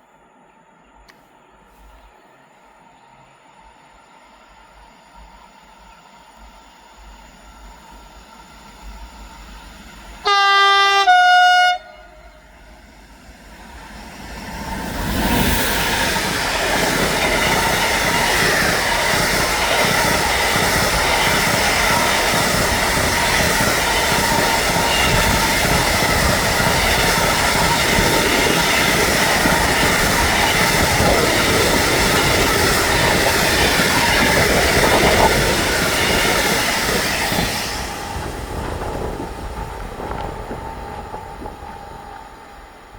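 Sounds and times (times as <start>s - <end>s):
train wheels rumbling on rails: 0.0s - 42.9s
train two-tone horn: 10.2s - 12.6s.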